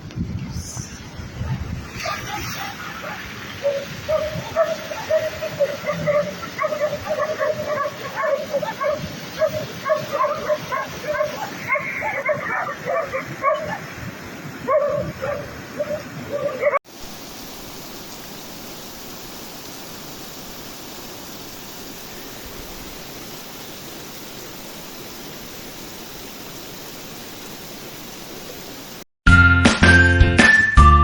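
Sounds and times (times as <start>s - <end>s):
heavy rain falling: 1.2s - 13.5s, 16.8s - 29.1s
dog yelping and barking: 2.0s - 13.8s, 14.7s - 16.8s.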